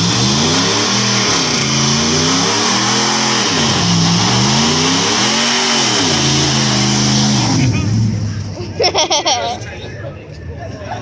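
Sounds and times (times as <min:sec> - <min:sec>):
vehicle engine revving: 0:00.0 - 0:08.7.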